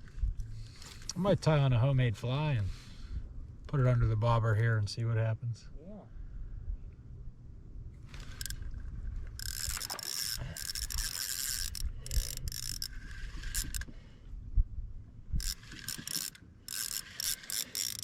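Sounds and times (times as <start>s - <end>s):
fishing reel whirring: 8.2s - 8.7s, 9.4s - 13.9s, 15.4s - 18.0s.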